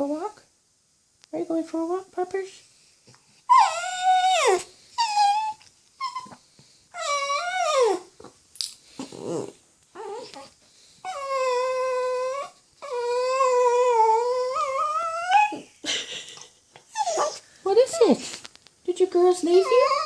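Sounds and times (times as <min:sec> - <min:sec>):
dog whining high-pitched cries: 0:03.5 - 0:08.1, 0:09.3 - 0:15.7, 0:16.9 - 0:18.2, 0:19.5 - 0:20.0.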